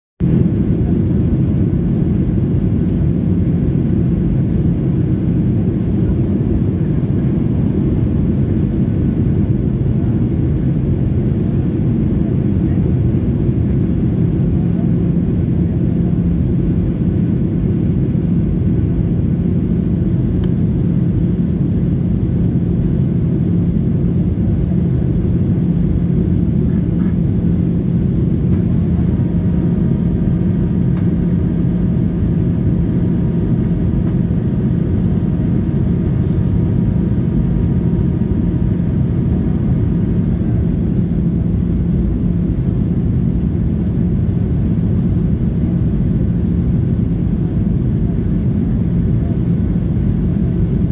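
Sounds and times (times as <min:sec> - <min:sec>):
airliner cabin engine rumble: 0:00.2 - 0:50.9.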